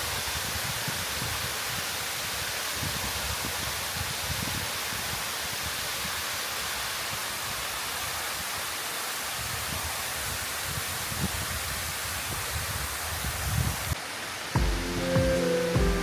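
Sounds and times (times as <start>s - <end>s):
waterfall rushing: 13.9s - 16.0s.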